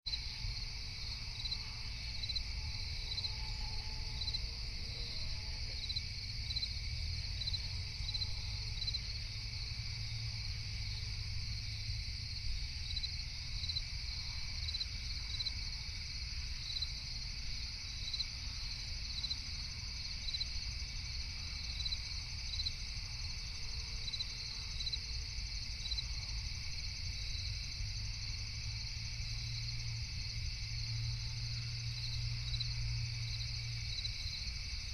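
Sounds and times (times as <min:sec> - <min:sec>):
crickets chirping: 0:00.1 - 0:34.9.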